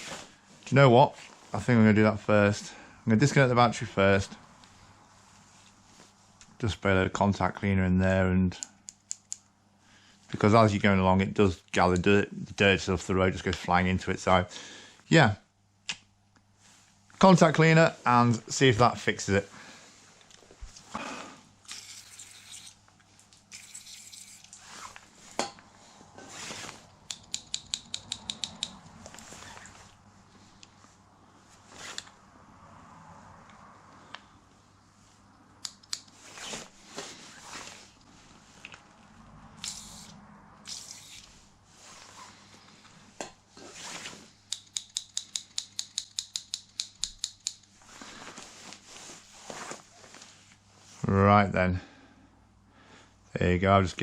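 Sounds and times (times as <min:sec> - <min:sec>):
sharp click: 0:27.1 - 0:28.8, 0:44.5 - 0:47.6
quick run of even clicks: 0:27.2 - 0:28.8.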